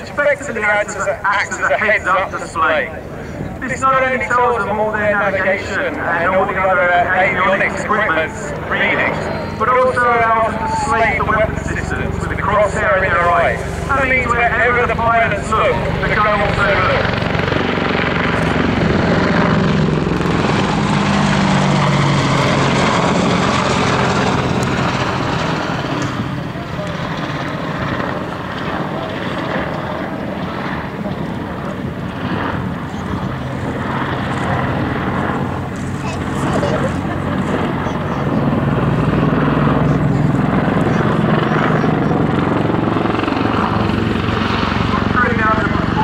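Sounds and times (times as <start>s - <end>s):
helicopter rotor and engines: 0.0s - 46.0s.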